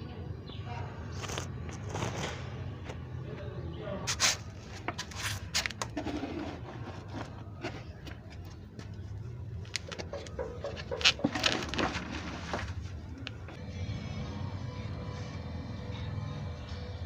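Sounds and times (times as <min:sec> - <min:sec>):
dove cooing: 0:09.7 - 0:12.6.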